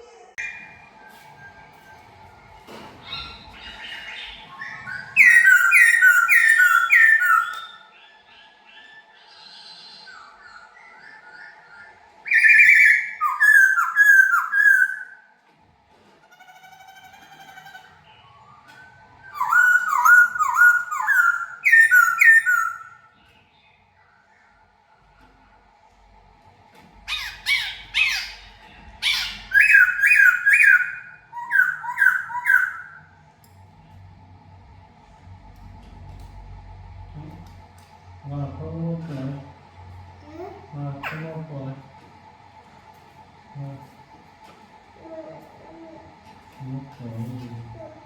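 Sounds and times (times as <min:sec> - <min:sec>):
bird singing whistled notes: 0:03.0 - 0:15.2, 0:18.2 - 0:23.0, 0:29.1 - 0:33.0.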